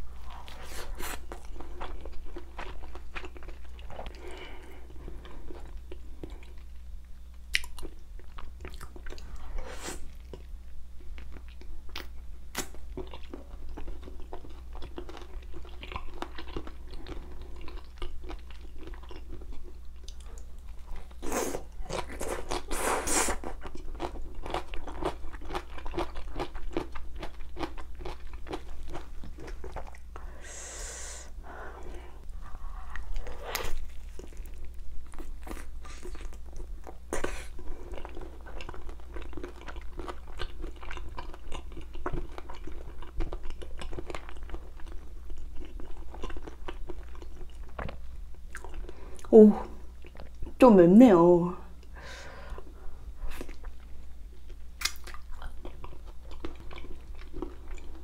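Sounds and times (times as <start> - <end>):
chewing and crunching: 0.1 - 6.8, 7.4 - 30.2, 31.8 - 50.6, 52.5 - 58.0
breathy hiss: 30.2 - 33.7.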